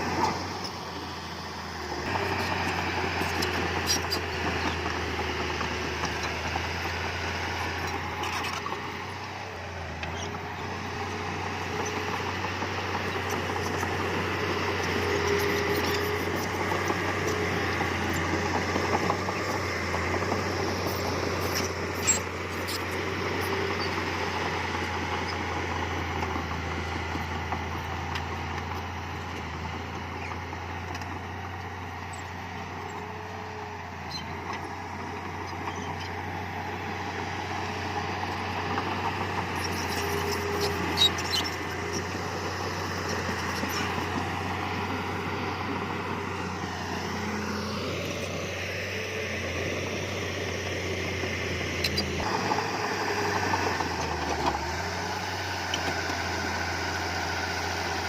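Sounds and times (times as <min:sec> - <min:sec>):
heavy machinery diesel engine: 0:00.0 - 0:58.0.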